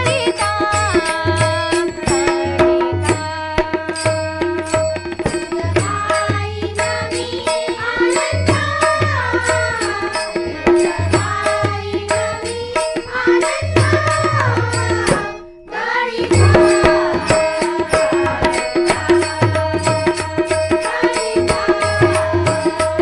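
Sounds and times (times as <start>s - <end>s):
tabla beat: 0.0s - 23.0s
devotional melody: 13.0s - 23.0s.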